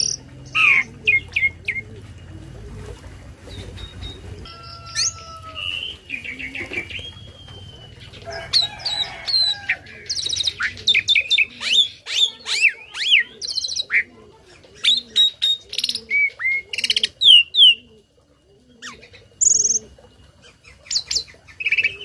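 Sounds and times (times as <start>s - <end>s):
starling singing: 0.0s - 2.0s, 3.5s - 14.1s.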